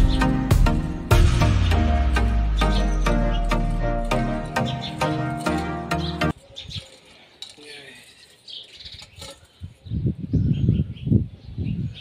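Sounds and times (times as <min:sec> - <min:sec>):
small birds chirping: 0:01.4 - 0:12.0.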